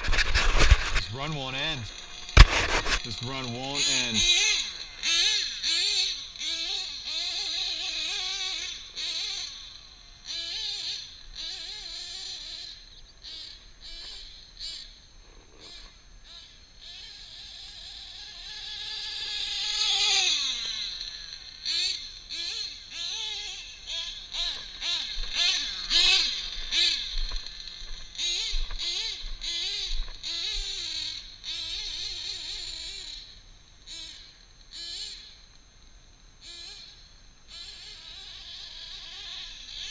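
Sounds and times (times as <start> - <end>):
rc car engine revving: 0.0 - 35.6, 36.4 - 39.9.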